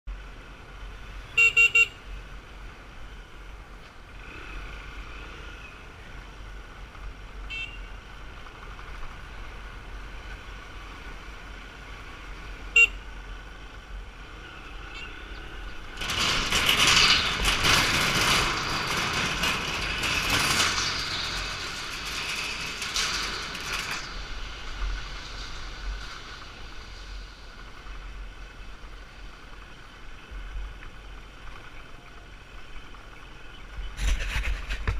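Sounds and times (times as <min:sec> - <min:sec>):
rush of traffic noise: 0:00.1 - 0:34.9
street traffic hum: 0:00.1 - 0:34.9
motorbike horns tooting: 0:01.3 - 0:02.0, 0:07.4 - 0:07.9, 0:12.8 - 0:13.0, 0:14.8 - 0:15.6.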